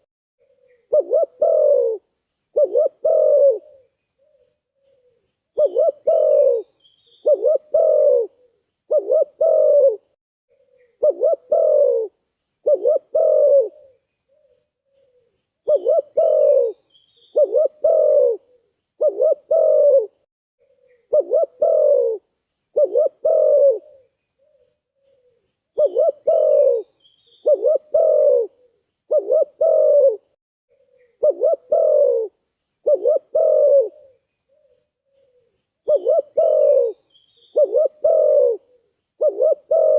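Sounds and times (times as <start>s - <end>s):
dove cooing: 0.4s - 2.0s, 2.6s - 39.9s
faint high chirps: 3.6s - 8.6s, 23.8s - 28.8s, 34.0s - 38.0s.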